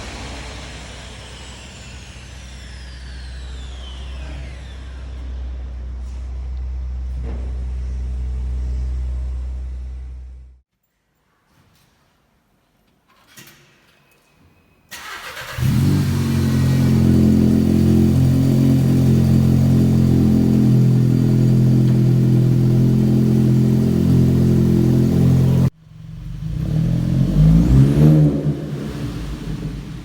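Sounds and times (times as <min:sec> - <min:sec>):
car engine idling and revving: 0:15.0 - 0:30.0.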